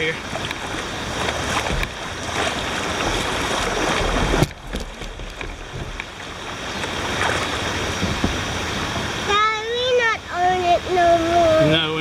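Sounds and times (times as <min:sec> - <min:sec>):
river rapids rushing: 0:00.0 - 0:09.4.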